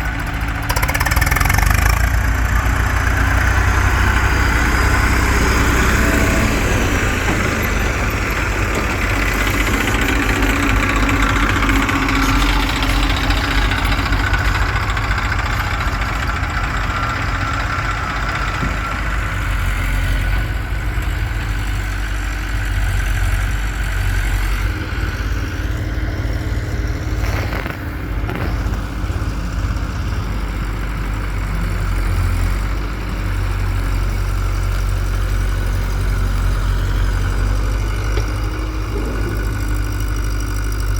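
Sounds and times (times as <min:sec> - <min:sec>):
diesel engines idling: 0:00.0 - 0:40.9.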